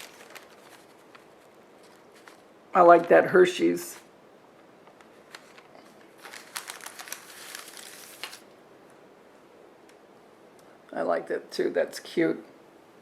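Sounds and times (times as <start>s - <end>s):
light clicks and crinkling rustle: 0.0s - 3.1s, 4.5s - 9.0s.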